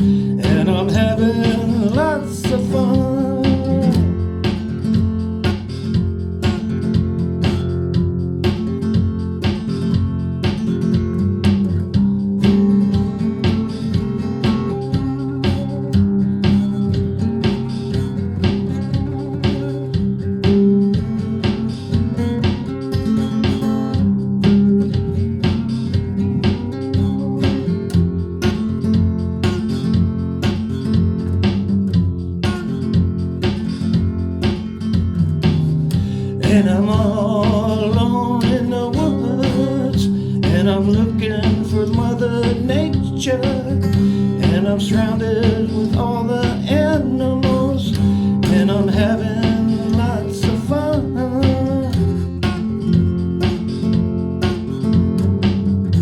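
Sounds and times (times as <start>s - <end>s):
person singing: 0.0s - 4.2s, 36.3s - 52.5s
guitar strumming: 0.0s - 56.0s.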